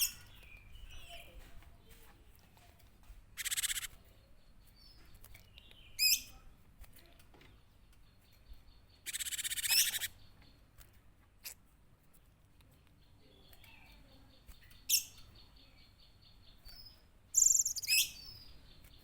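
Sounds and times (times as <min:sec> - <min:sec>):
bird buzzy chatter: 0:03.4 - 0:05.0, 0:07.0 - 0:11.7, 0:17.4 - 0:19.0.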